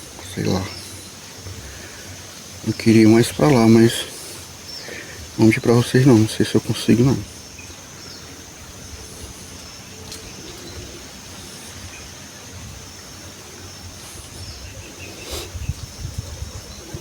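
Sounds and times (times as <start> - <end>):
high-pitched insect drone: 0.0 - 17.0
wind rumble on microphone: 8.2 - 17.0.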